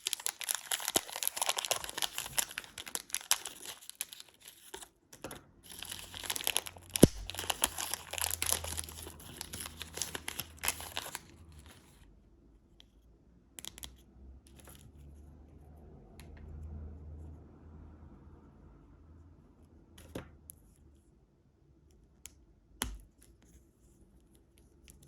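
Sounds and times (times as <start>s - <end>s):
plastic wrapper crinkling and tearing: 0.0s - 5.0s, 5.6s - 11.8s.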